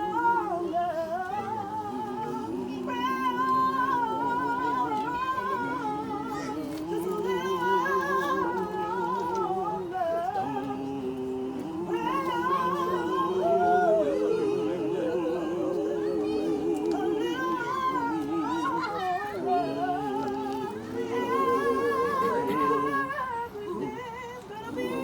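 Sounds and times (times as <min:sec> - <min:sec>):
group of people singing slow melody: 0:00.0 - 0:25.0.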